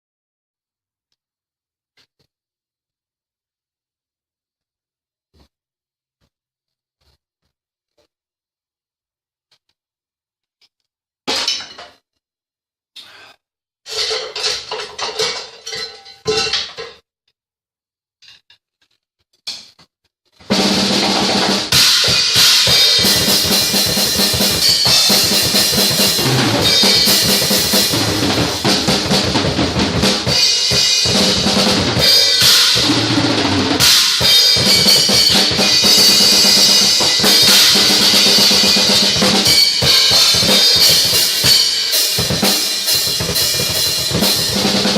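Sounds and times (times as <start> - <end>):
drum kit playing: 20.5 - 44.9.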